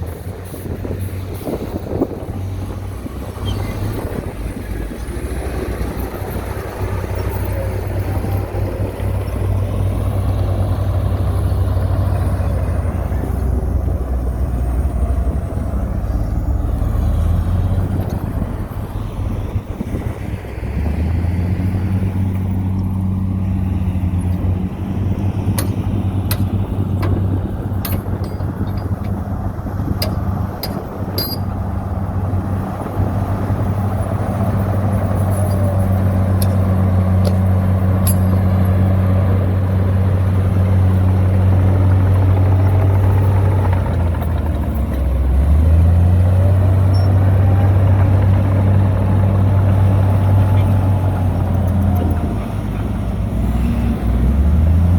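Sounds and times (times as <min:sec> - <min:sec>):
heavy diesel engine running: 0:00.0 - 0:54.9
sharp clicks and clanks: 0:25.5 - 0:31.6.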